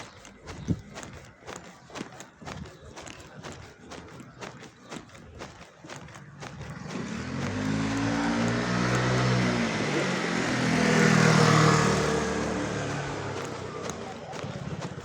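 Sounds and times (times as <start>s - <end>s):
vehicle engine passing by: 6.6s - 15.0s.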